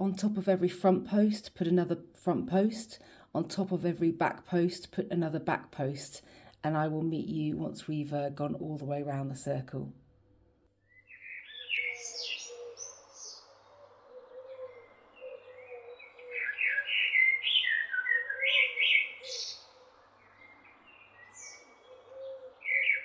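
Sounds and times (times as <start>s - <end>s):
small birds chirping: 10.8s - 23.0s.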